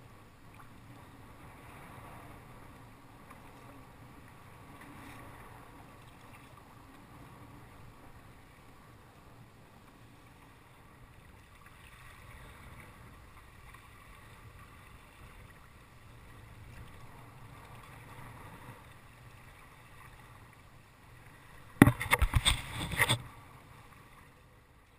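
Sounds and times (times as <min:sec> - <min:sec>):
wind: 0:00.0 - 0:24.9
water lapping: 0:00.4 - 0:24.6.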